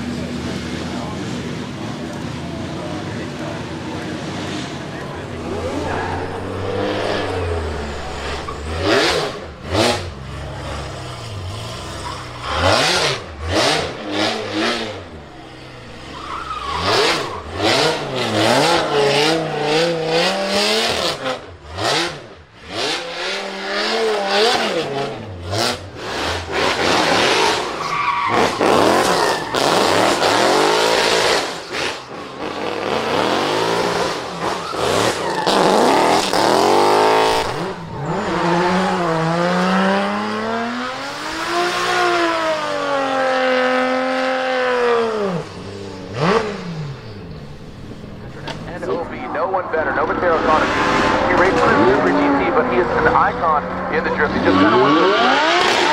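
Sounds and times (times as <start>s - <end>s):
car engine revving hard: 3.6s - 55.9s
tyres squealing: 4.8s - 19.6s, 26.4s - 31.6s, 34.3s - 39.9s.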